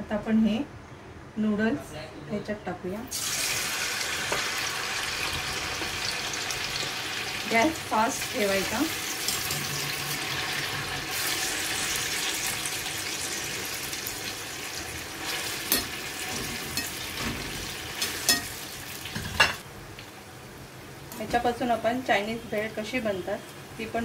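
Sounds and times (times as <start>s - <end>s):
noodles sizzling in oil: 3.1s - 20.1s.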